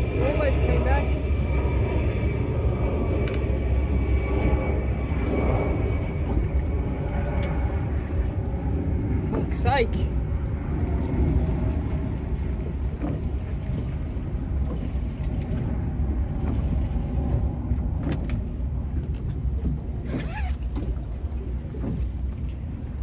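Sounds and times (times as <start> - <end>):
fishing boat engine rumble: 0.0 - 23.0.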